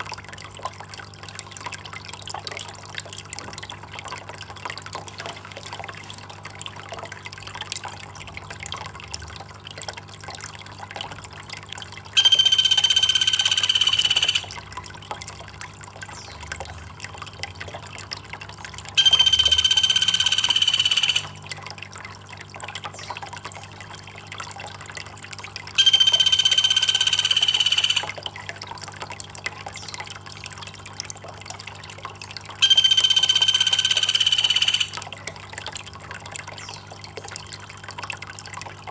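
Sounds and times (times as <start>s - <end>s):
trickling water: 0.0s - 38.9s
high-pitched bird call: 12.2s - 14.6s, 19.0s - 21.4s, 25.8s - 28.2s, 32.6s - 35.0s.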